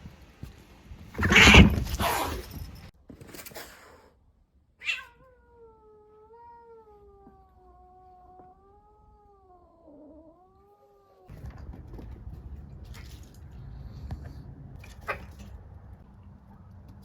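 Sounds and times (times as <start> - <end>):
cat yowling: 1.2 - 2.3, 4.8 - 11.3.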